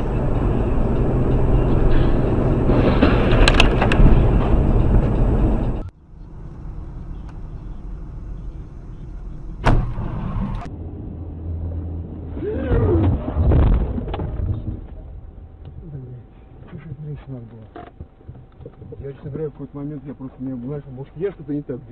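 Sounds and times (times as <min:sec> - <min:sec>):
car road noise: 0:00.0 - 0:21.9
loud collision bang: 0:09.6 - 0:10.6.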